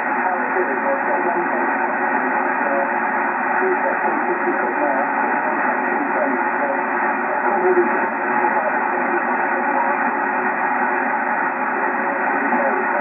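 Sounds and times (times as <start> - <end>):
faint radio voice: 0.0 - 13.0
radio static hiss: 0.0 - 13.0.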